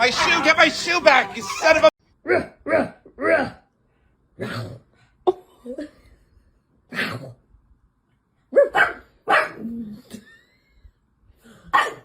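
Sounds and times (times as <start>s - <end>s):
dog barking: 0.0s - 2.9s, 8.5s - 9.6s, 11.7s - 12.0s.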